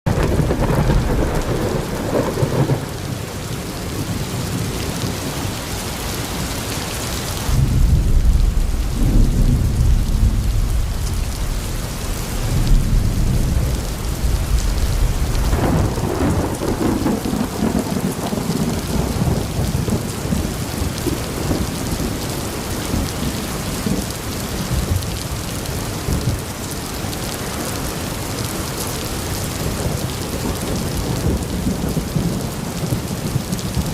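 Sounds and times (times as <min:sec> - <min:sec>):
rolling thunder: 0:00.1 - 0:03.3, 0:07.4 - 0:26.5, 0:29.5 - 0:33.9
steady rain: 0:00.1 - 0:33.9.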